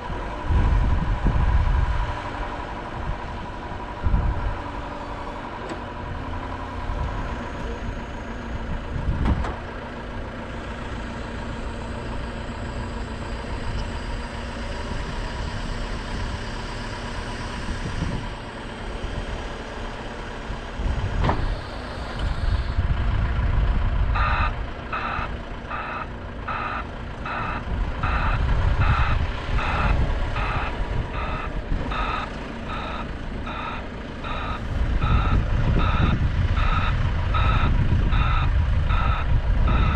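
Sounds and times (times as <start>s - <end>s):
diesel machinery rumbling: 0.0s - 39.9s
reversing alarm beeping: 24.1s - 39.9s.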